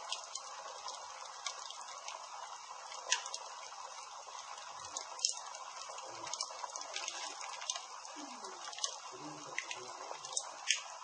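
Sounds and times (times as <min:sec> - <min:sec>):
campfire hissing and crackling: 0:00.0 - 0:11.0.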